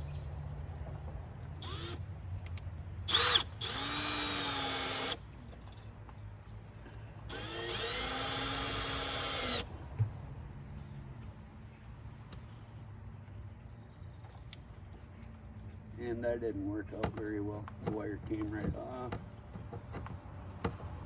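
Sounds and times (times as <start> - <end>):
power drill driving screws: 1.6 - 2.0, 3.1 - 5.2, 7.3 - 9.7.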